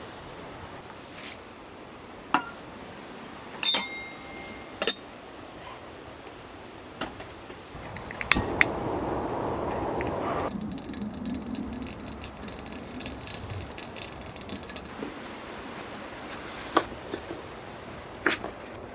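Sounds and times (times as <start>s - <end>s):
dishes clinking: 2.4s - 2.6s, 3.6s - 5.0s
steady rushing noise: 7.7s - 18.2s.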